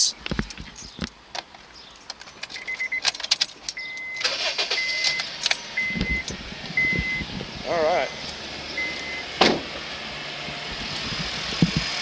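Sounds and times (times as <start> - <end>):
car keys jingling: 0.5 - 7.2
car warning chime beeps: 2.6 - 3.1, 3.7 - 7.3, 8.8 - 9.3.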